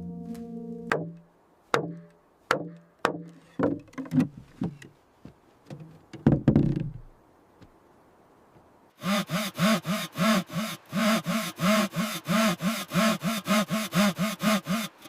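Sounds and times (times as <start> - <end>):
wooden knocks with low ring: 0.9 - 1.2, 1.8 - 4.8.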